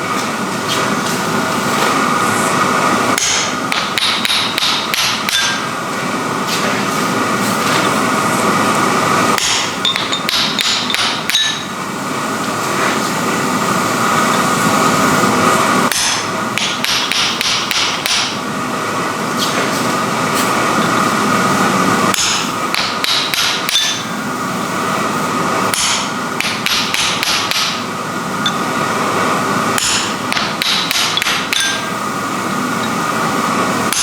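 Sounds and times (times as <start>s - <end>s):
steady background hum: 0.0s - 34.0s
hammer striking hot iron on anvil: 3.2s - 5.7s, 9.4s - 11.8s, 15.9s - 18.4s, 22.1s - 24.2s, 25.7s - 28.8s, 29.8s - 32.0s.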